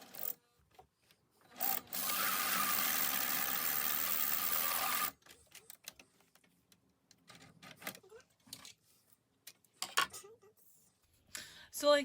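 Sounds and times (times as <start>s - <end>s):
sewing machine running: 1.6s - 5.2s.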